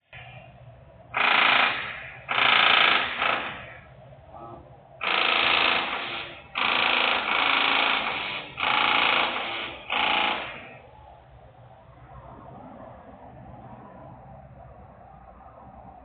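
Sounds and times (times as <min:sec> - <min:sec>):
low background hum: 0:00.0 - 0:16.0
buzzy industrial machinery bursts: 0:00.1 - 0:11.2.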